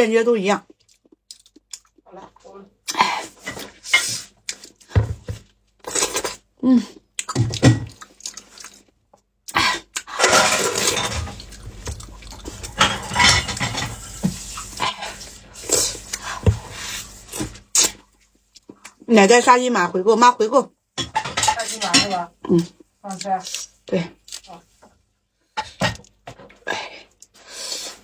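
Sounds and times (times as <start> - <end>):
person chewing wetly: 0.6 - 2.2, 4.4 - 4.9, 5.8 - 10.2, 11.3 - 12.8, 14.5 - 19.0.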